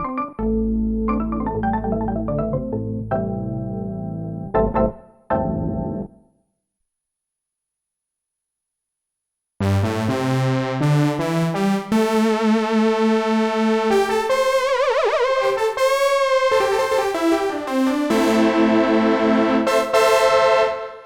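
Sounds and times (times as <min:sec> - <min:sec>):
synthesizer playing chords: 0:09.6 - 0:21.0.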